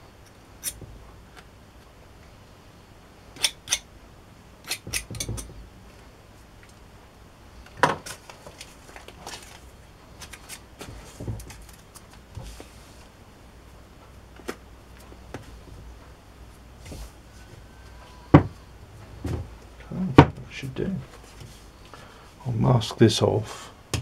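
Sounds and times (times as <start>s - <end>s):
tools tapping on workbench: 4.7s - 5.6s.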